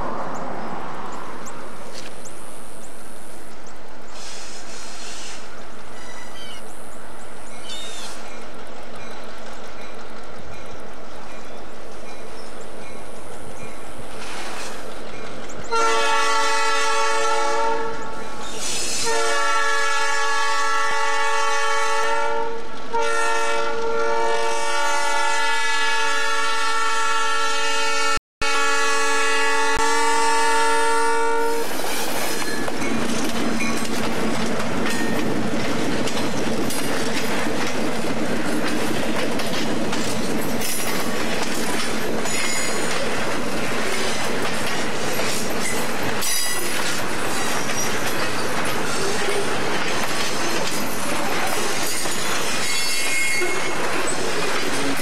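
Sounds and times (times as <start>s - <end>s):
locomotive air horn blasts: 15.7s - 18.2s, 18.9s - 31.9s
freight cars clattering over rails: 31.9s - 55.0s.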